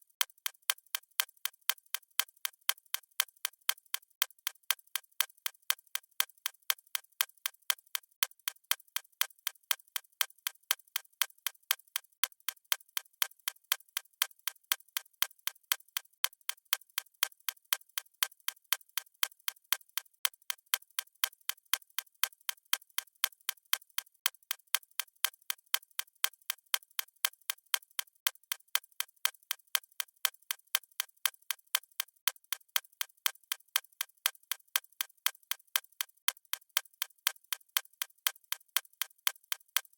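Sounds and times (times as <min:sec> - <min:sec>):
clock ticking: 0:31.4 - 0:39.9.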